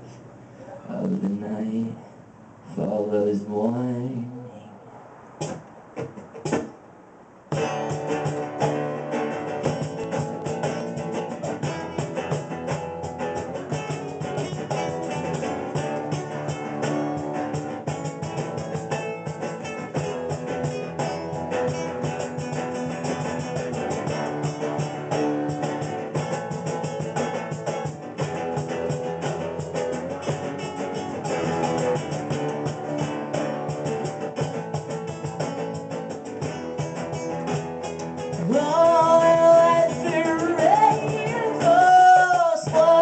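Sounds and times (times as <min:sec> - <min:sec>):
live band with guitar: 0:05.1 - 0:06.8, 0:07.4 - 0:43.0
person singing long notes: 0:38.4 - 0:43.0.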